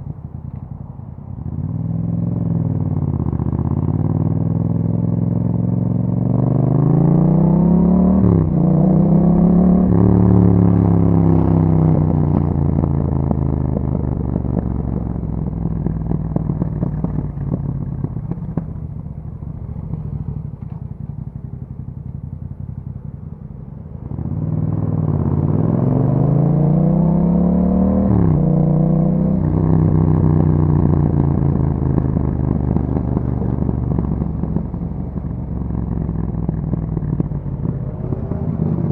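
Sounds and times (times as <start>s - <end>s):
motorcycle engine revving: 1.3s - 38.9s
exhaust crackle: 8.2s - 27.0s, 28.1s - 38.9s.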